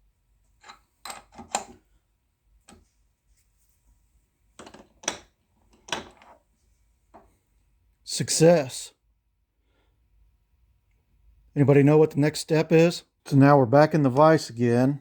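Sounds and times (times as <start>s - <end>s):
metallic clicks and creaks of vise: 0.6s - 1.8s.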